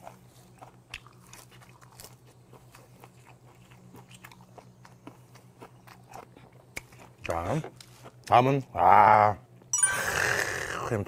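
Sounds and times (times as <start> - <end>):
man chewing crisp greens: 0.0 - 8.3.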